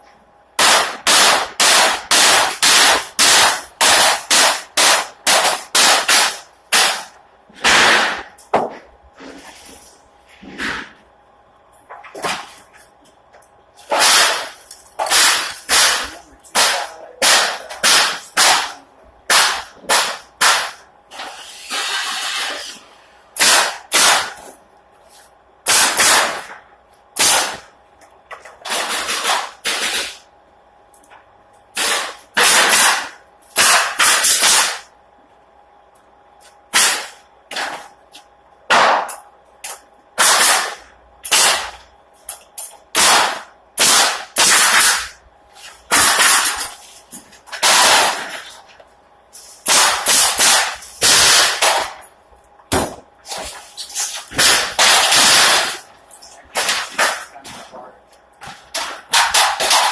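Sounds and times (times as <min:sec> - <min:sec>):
nail gun shots: 0:00.6 - 0:08.7, 0:13.9 - 0:22.6, 0:23.4 - 0:24.5, 0:25.6 - 0:26.6, 0:27.2 - 0:27.7, 0:28.6 - 0:30.2, 0:31.8 - 0:34.9, 0:36.7 - 0:37.9, 0:38.7 - 0:39.2, 0:40.2 - 0:41.8, 0:42.9 - 0:45.2, 0:45.9 - 0:46.7, 0:47.5 - 0:48.4, 0:49.6 - 0:52.0, 0:54.3 - 0:55.8, 0:58.7 - 0:59.9
air hisses: 0:21.2 - 0:22.8.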